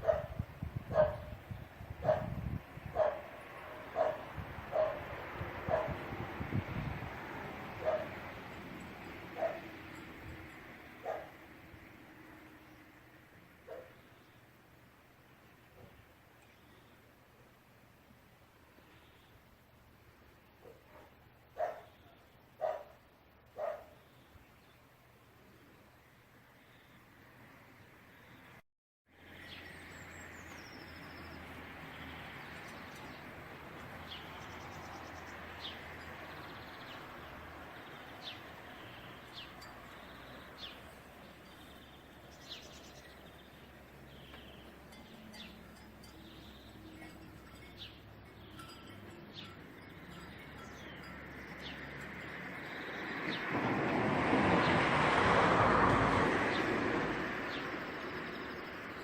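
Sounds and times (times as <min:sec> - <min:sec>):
bird chirping: 0:33.9 - 0:51.9.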